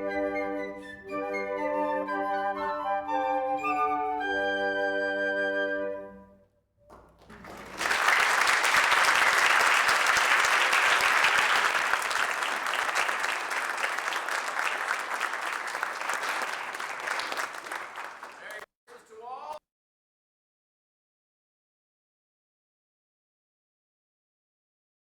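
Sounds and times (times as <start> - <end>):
flute music: 0.0 - 6.6
audience applause: 6.9 - 18.7.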